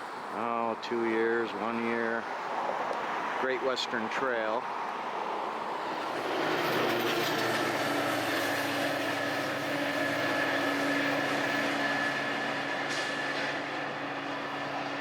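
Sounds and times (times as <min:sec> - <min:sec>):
large vehicle rumbling: 0:04.5 - 0:15.0.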